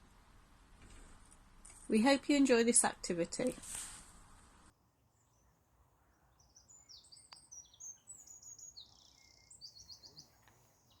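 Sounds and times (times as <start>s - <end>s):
faint birdsong chirps and trills: 4.8s - 11.0s.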